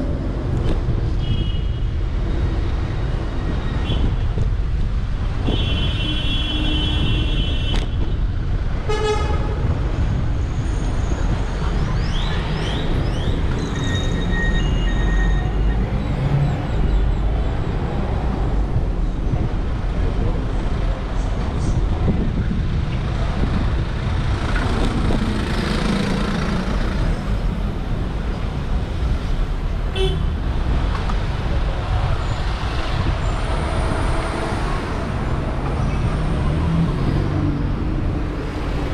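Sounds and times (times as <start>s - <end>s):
passing cars: 0.0s - 38.9s
wind: 0.0s - 38.9s
car horn: 5.4s - 8.0s, 8.8s - 9.6s, 29.9s - 30.3s.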